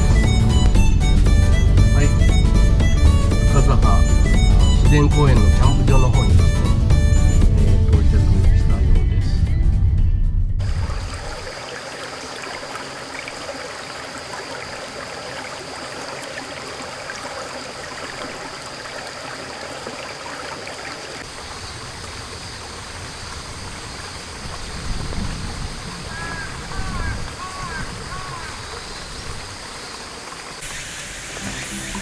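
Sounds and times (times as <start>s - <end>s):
rushing pattering water: 10.6s - 32.0s.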